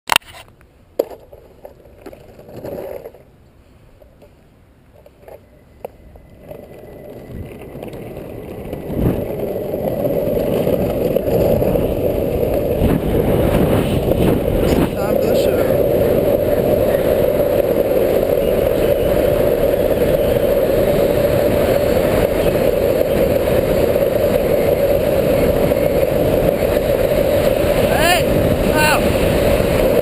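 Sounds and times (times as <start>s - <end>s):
longboard wheels rolling on asphalt: 0.2s - 30.0s.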